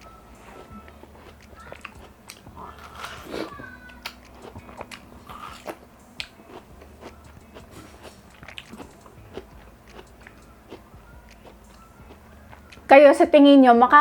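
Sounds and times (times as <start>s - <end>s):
person chewing watermelon: 0.0s - 12.9s.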